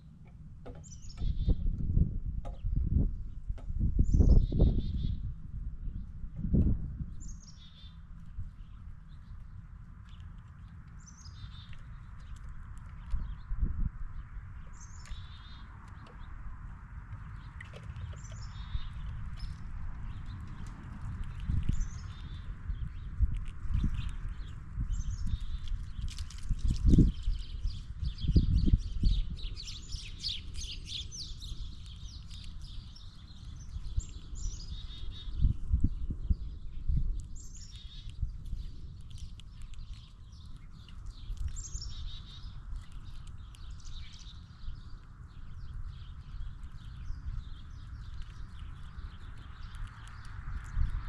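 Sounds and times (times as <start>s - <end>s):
low thumps and knocks: 0.2s - 4.0s
birds chirping: 0.6s - 1.7s, 7.1s - 51.0s.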